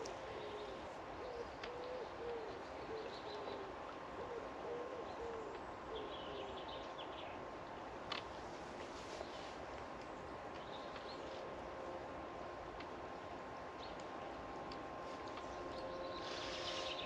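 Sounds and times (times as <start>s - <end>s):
bird hooting softly: 0.0s - 6.7s, 15.0s - 17.0s.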